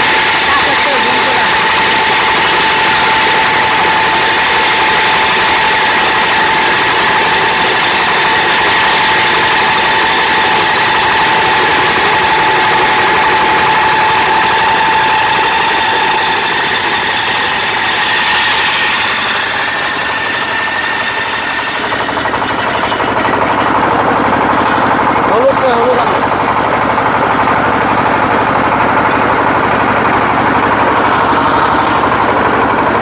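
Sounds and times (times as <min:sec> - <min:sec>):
constant whine: 0:00.0 - 0:33.0
diesel engine running: 0:00.0 - 0:33.0.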